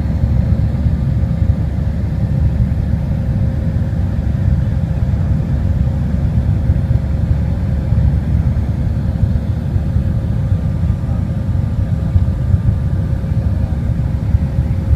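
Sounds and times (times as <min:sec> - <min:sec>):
airliner engine rumble: 0:00.0 - 0:14.9
faint steady hum: 0:00.0 - 0:14.9.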